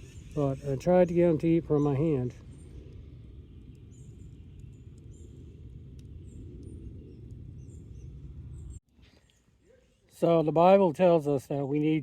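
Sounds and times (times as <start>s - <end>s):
low outdoor rumble: 0.0s - 8.8s
small bird chirping: 0.0s - 10.1s.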